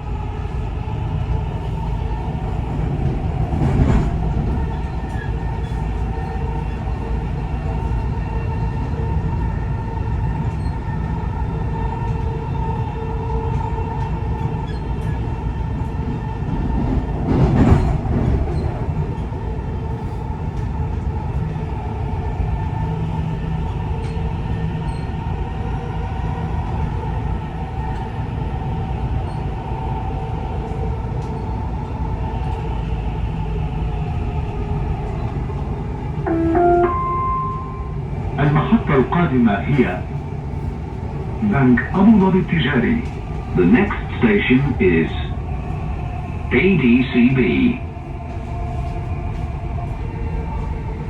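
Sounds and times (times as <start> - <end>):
train rumble with whining motor: 0.0 - 51.0
electronic tone: 36.3 - 38.0.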